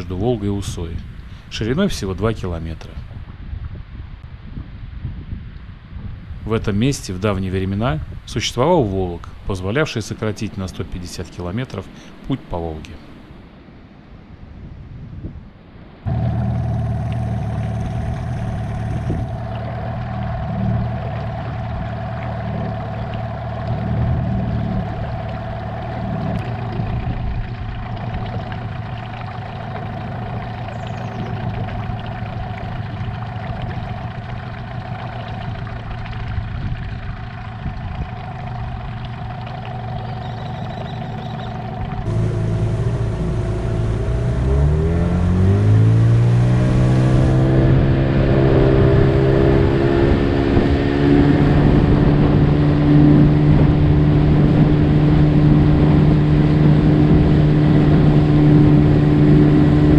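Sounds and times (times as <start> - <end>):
outboard motor running: 16.1 - 59.9.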